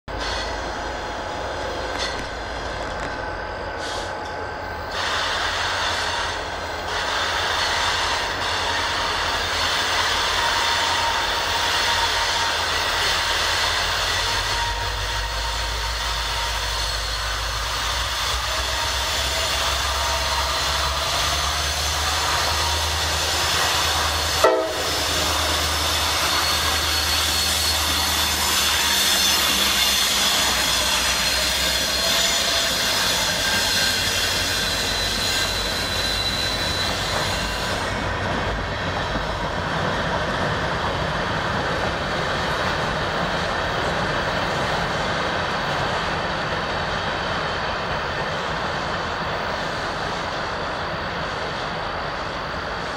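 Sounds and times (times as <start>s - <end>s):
diesel locomotive engine rumble: 0.0s - 52.9s
wheel-on-rail noise: 0.1s - 12.2s
high wheel squeal: 0.1s - 39.4s.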